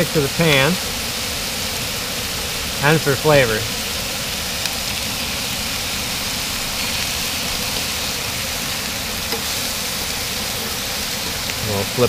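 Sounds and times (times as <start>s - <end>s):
fish frying in butter: 0.0s - 12.0s.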